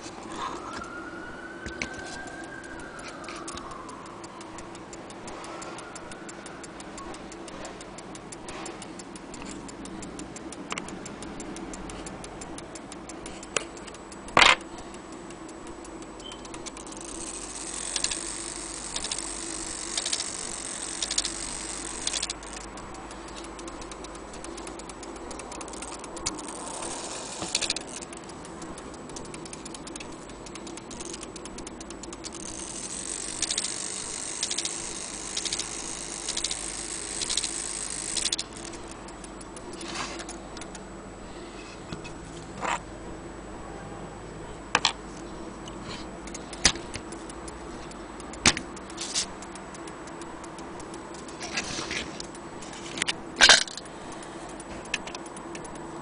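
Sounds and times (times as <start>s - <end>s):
mechanical clock ticking: 0.0s - 42.9s, 44.7s - 56.0s
sharp loud click: 53.0s - 53.9s.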